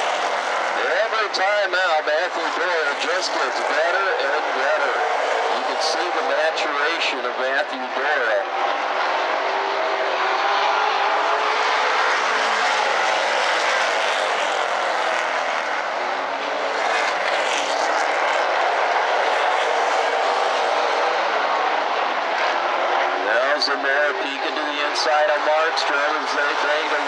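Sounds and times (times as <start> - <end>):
race car engines roaring: 0.0 - 27.0.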